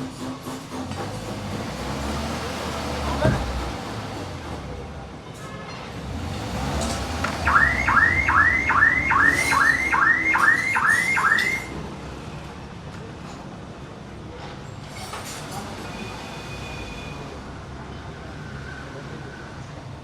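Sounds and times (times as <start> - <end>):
low workshop noise: 0.0 - 20.0
car alarm siren whooping: 7.2 - 11.8.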